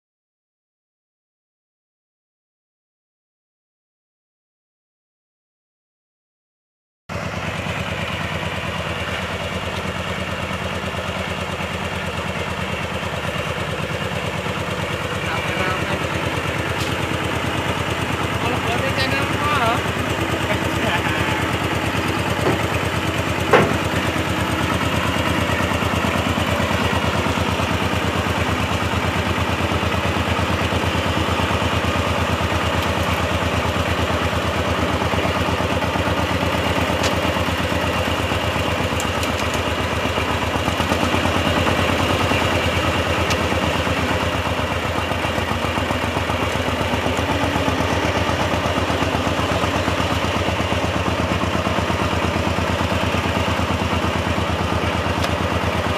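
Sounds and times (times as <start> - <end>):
diesel engine running: 7.1 - 55.9.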